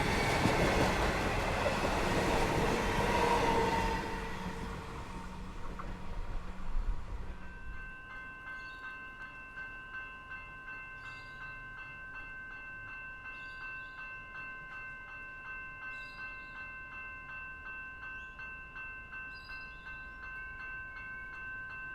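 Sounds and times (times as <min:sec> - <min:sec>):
train rumble: 0:00.0 - 0:08.0
level crossing warning bell: 0:07.4 - 0:21.9.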